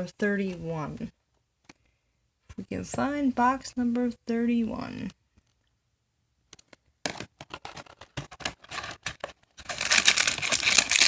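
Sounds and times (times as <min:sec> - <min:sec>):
packaging crinkling and tearing: 0:07.5 - 0:11.0.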